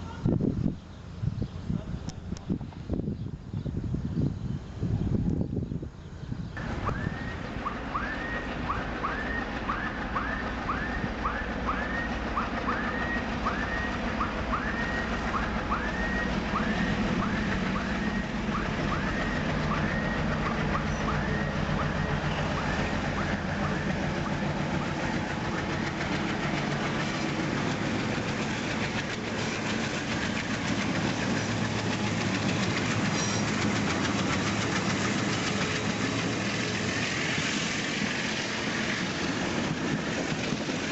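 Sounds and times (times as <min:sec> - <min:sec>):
freight train rumbling past: 0:00.0 - 0:40.9
short high squeak: 0:33.2 - 0:33.6.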